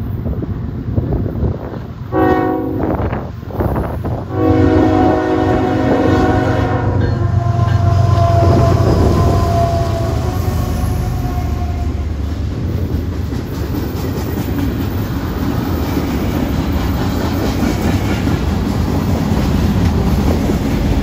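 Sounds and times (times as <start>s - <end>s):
diesel locomotives rumbling past: 0.0s - 21.0s
locomotive horn blasts: 2.1s - 3.1s, 4.3s - 12.1s.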